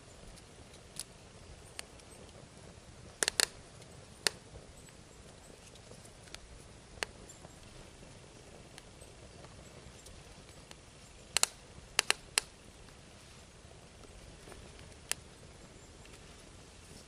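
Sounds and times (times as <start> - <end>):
log fire crackling and popping: 0.0 - 17.0.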